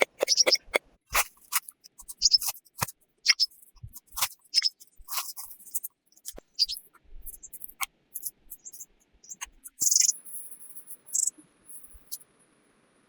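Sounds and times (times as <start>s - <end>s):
sharp clicks and taps: 0.0s - 5.6s.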